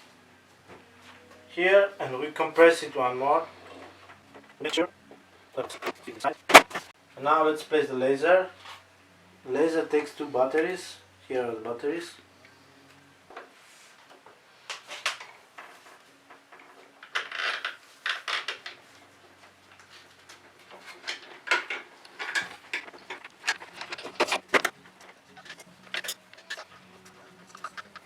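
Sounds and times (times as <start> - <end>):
small parts clicking and rattling: 20.3 - 28.0.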